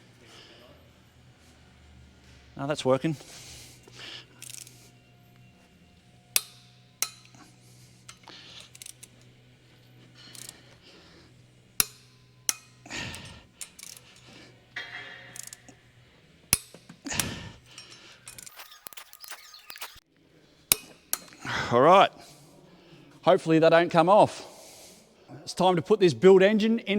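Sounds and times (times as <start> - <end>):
steady low hum: 0.0 - 18.6
tools clanking and shuffling: 2.2 - 20.0
torque wrench clicking: 4.3 - 4.9, 6.3 - 9.4, 10.2 - 11.0, 11.8 - 15.7, 16.5 - 20.0, 20.7 - 21.4.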